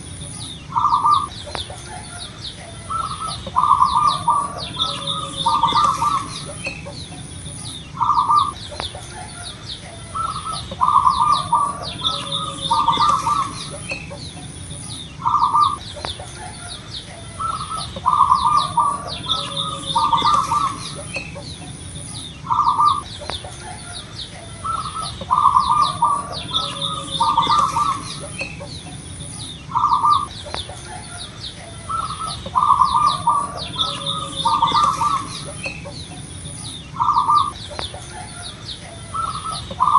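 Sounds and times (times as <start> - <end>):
dove cooing: 0.0 - 39.9
small birds chirping: 0.0 - 39.9.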